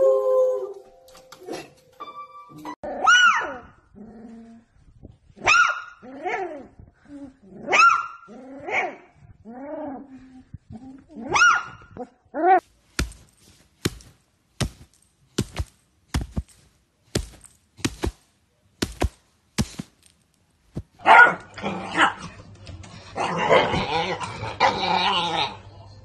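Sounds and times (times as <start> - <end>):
sharp thumps: 12.9 - 21.0.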